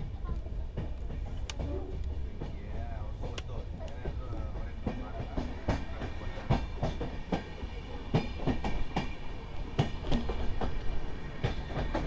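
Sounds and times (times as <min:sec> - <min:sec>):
train wheels clattering over rail joints: 0:03.2 - 0:12.0.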